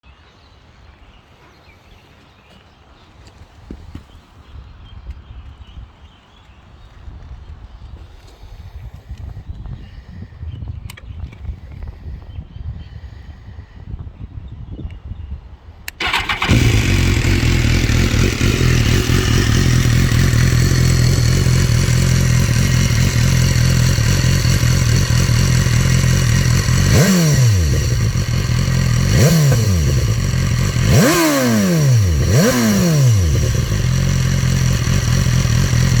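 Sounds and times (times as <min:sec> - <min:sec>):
motorcycle throttle blips: 0:15.9 - 0:36.0
motorcycle engine idling: 0:16.0 - 0:36.0.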